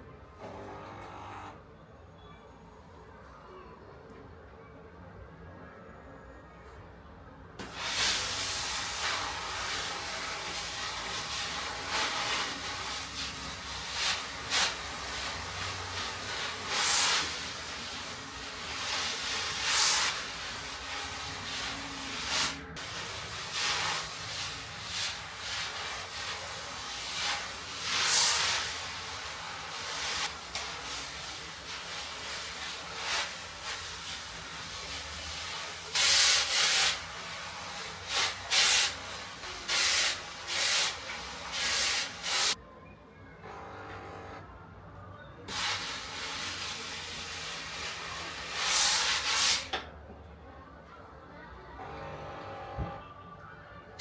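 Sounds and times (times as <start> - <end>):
short bursts of hiss: 7.6 - 42.6, 45.5 - 49.8.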